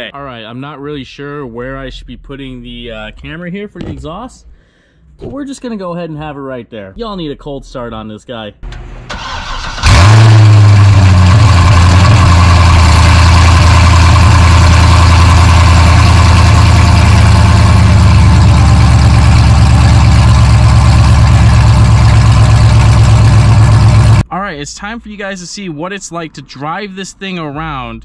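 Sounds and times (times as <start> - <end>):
car engine starting and idling: 8.6 - 24.3
starter motor cranking: 9.1 - 19.1.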